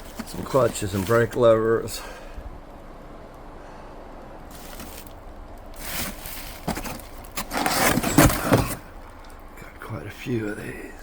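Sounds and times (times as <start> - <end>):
boxes rustling and knocking: 0.0 - 1.4, 4.5 - 5.2, 5.8 - 9.0.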